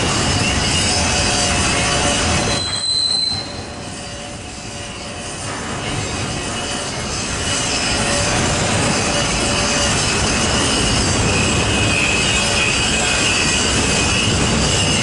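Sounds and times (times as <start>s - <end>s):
freight train rolling past: 0.0s - 15.0s
train wheels squealing: 0.0s - 15.0s.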